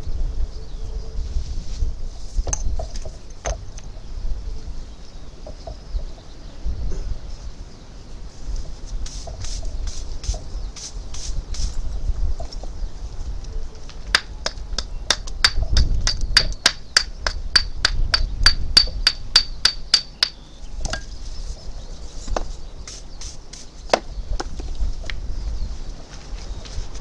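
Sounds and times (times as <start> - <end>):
hammer tapping: 14.2 - 21.0.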